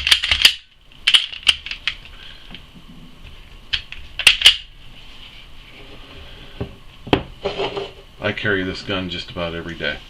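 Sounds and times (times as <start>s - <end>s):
pistol parts clicking: 0.0s - 2.0s, 3.7s - 4.7s.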